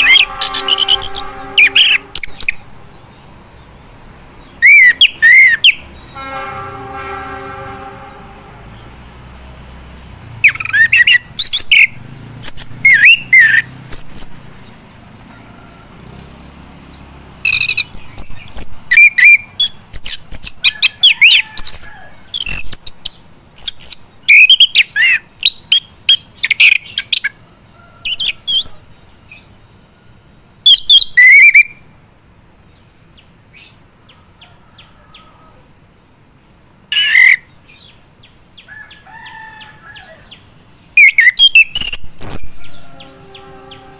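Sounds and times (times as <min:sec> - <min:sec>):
thrush singing: 0:00.0 - 0:03.4, 0:41.0 - 0:43.9.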